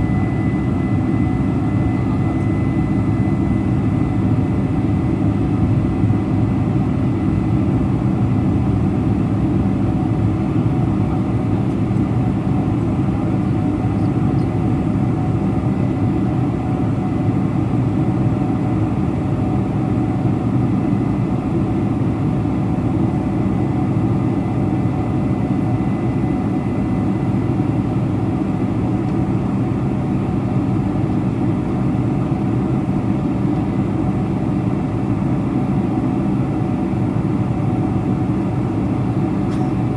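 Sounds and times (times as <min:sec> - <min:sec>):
jet cabin roar: 0:00.0 - 0:15.9, 0:33.4 - 0:39.9.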